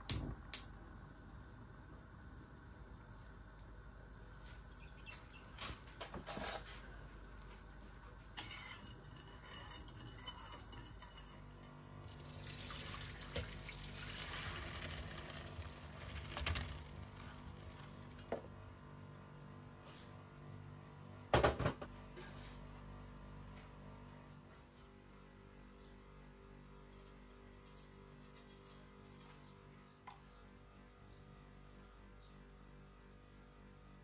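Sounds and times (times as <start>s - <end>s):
water pouring into colander: 12.0s - 18.2s.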